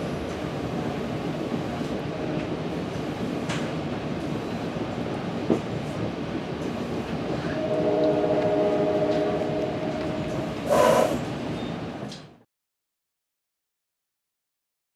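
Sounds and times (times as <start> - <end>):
train rumbling: 0.0 - 12.4
train horn: 7.4 - 11.3.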